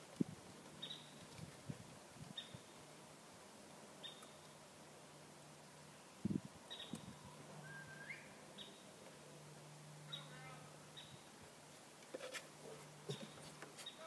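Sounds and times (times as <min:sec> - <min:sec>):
birds chirping: 0:00.7 - 0:01.3, 0:04.0 - 0:04.6, 0:06.6 - 0:09.0, 0:10.0 - 0:11.4
bird rising whistle: 0:07.6 - 0:08.4.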